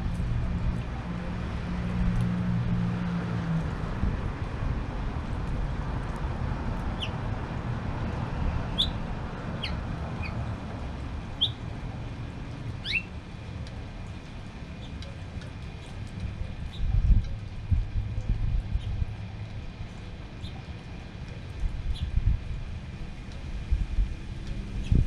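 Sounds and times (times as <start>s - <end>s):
steady low rumble: 0.0s - 25.0s
small bird chirping: 7.0s - 7.2s, 8.7s - 9.0s, 11.4s - 11.6s, 12.8s - 13.1s.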